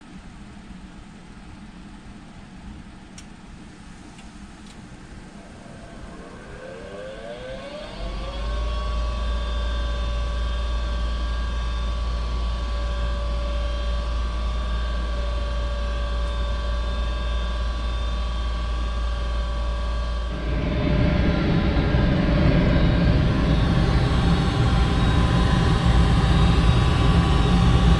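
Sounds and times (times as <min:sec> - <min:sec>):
furnace motor whining and humming: 0:04.1 - 0:27.9
low rumble: 0:04.8 - 0:27.9
loud rushing noise: 0:20.3 - 0:27.9.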